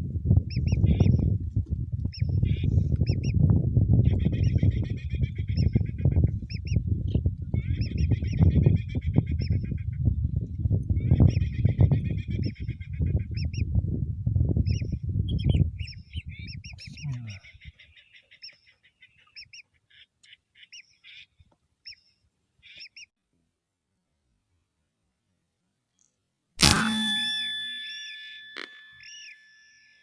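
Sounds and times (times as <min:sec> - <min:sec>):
wind buffeting microphone: 0:00.0 - 0:17.9.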